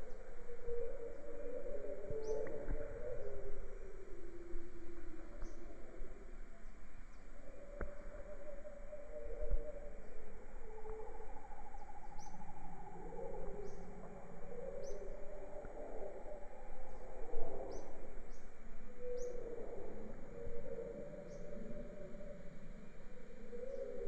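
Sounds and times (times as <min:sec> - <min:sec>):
steady high-pitched hum: 0:00.0 - 0:24.0
birds calling low: 0:13.1 - 0:16.3.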